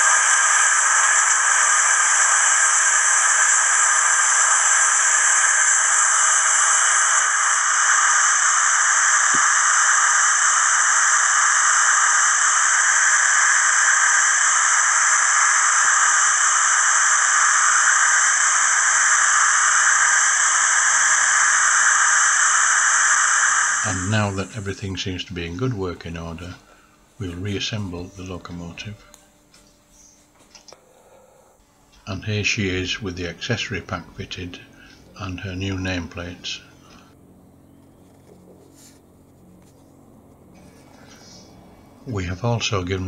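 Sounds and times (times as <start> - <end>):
steam locomotive hiss from speaker: 0.0 - 29.0.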